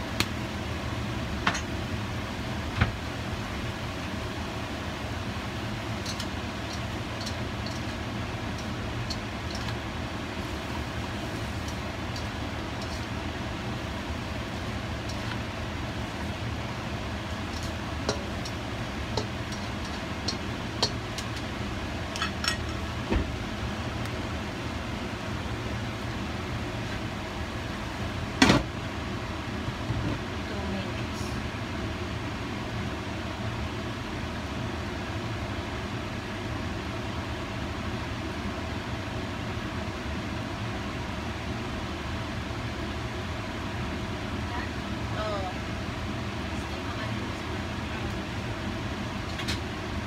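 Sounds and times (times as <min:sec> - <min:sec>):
low mechanical hum: 0:00.0 - 0:50.0.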